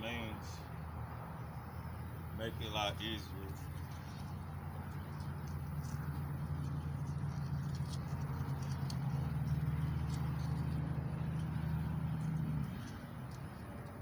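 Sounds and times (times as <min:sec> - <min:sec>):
low motor hum: 0:03.2 - 0:14.0.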